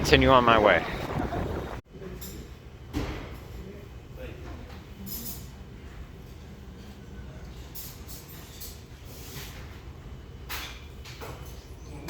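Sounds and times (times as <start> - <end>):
road noise: 0.0 - 1.8
wind on microphone: 0.0 - 1.8.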